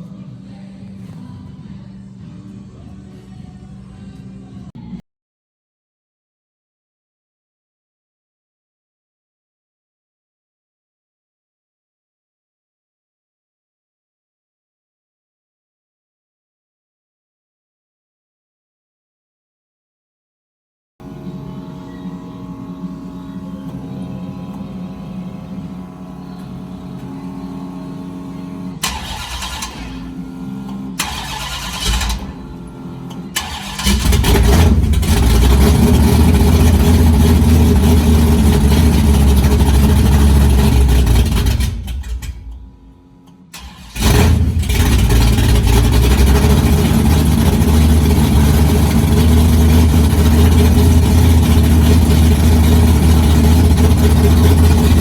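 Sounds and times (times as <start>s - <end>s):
car engine cranking: 21.0s - 55.0s
car engine running loudly: 21.0s - 55.0s.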